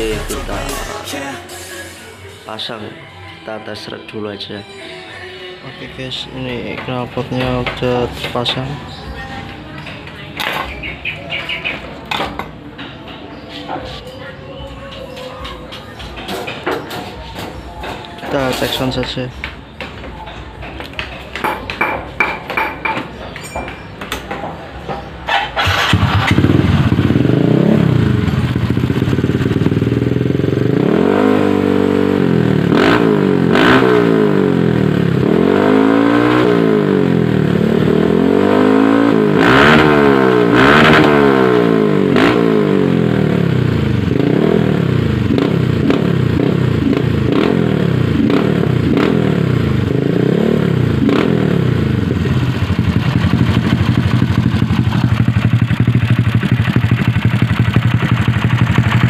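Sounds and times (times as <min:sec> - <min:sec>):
scooter engine revving and idling: 0:25.2 - 0:59.0.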